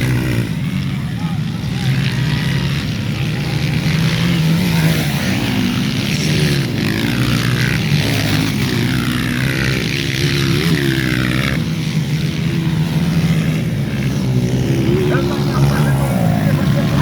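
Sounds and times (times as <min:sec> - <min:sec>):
racing motorcycle engines whining: 0:00.0 - 0:17.0
low engine drone: 0:14.6 - 0:17.0.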